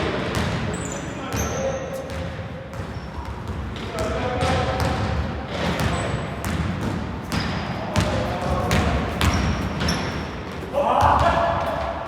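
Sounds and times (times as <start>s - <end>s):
echoing murmur of players: 0.0s - 12.0s
shoes squeaking on floor: 0.7s - 2.2s, 2.8s - 3.7s, 5.7s - 6.4s, 9.0s - 10.6s
basketball bouncing on wooden floor: 2.1s - 10.2s.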